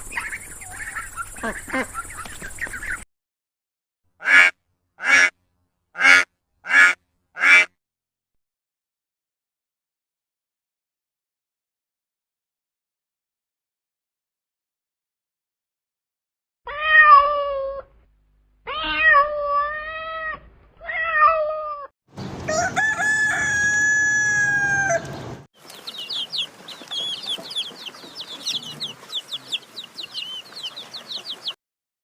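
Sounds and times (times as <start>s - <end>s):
chicks peeping: 0.0s - 3.0s, 24.7s - 31.6s
cat meowing: 16.7s - 17.9s, 18.7s - 21.9s
rooster crowing: 22.4s - 25.2s.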